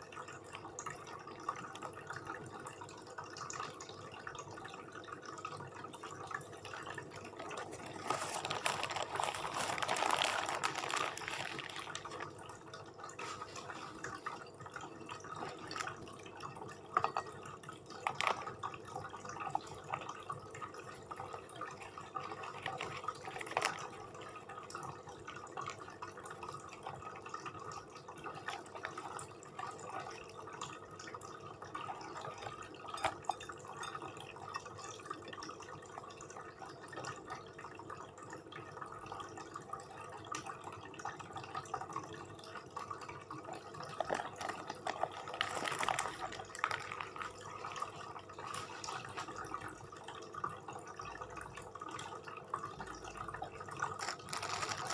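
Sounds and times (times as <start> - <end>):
wet eating sounds: 5.7 - 18.6, 21.2 - 26.0, 43.2 - 50.6, 53.7 - 54.9.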